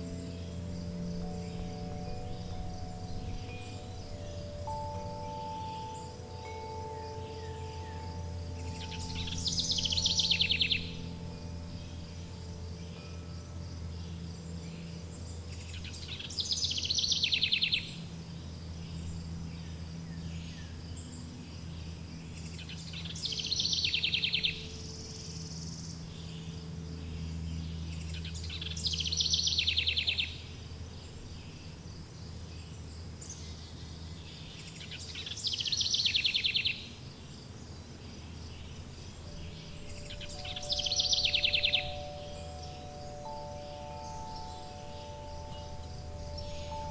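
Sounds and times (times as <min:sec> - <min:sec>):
songbird trilling: 0:00.0 - 0:13.2, 0:13.8 - 0:31.8, 0:32.6 - 0:37.0, 0:37.6 - 0:46.9
wind chimes ringing: 0:00.0 - 0:20.0, 0:38.8 - 0:46.9
low hum: 0:00.0 - 0:34.8, 0:38.1 - 0:46.9
insect chirr: 0:00.0 - 0:46.9.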